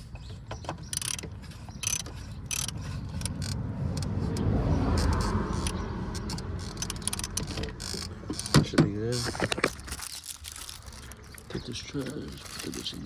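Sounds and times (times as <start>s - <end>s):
ratchet wrench clicking: 0.0s - 11.2s.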